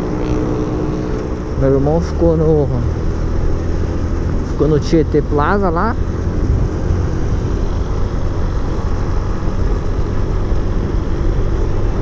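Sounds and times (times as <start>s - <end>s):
motorcycle engine running: 0.0s - 12.0s
wind rush on microphone: 6.0s - 12.0s.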